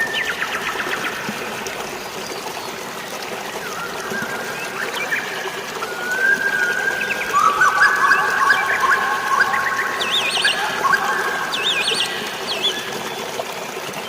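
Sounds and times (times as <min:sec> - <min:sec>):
water trickling and splashing: 0:00.0 - 0:14.0
birds chirping: 0:06.1 - 0:13.3.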